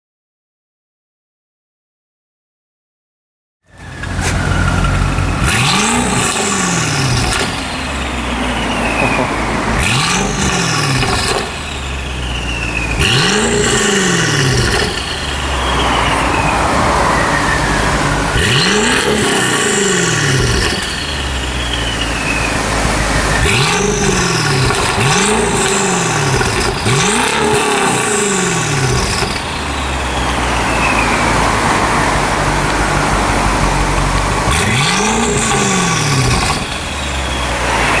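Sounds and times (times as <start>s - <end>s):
car engine revving: 3.7s - 38.0s
high whine sliding down: 3.7s - 38.0s.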